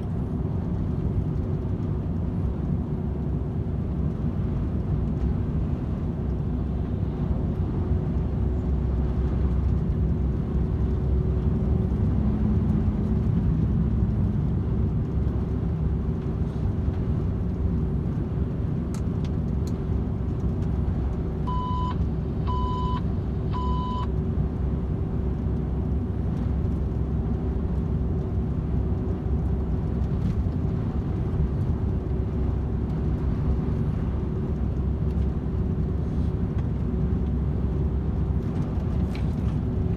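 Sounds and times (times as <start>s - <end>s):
diesel truck engine droning: 0.0s - 39.9s
short electronic beeps: 21.5s - 24.1s.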